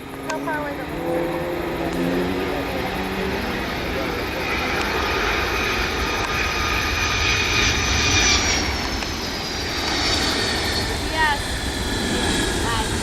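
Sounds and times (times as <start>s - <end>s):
high turbine whine: 0.0s - 13.0s
jet airliner passing: 0.0s - 13.0s.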